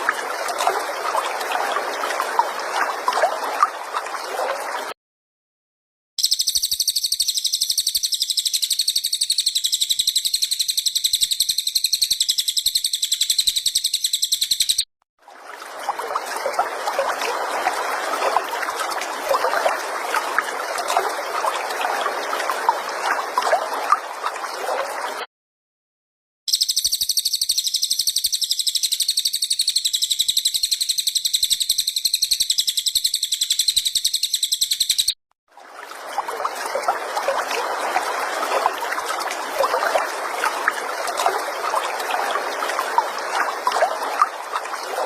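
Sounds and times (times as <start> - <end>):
high rapid bird trill: 6.2 - 14.8, 26.5 - 35.2.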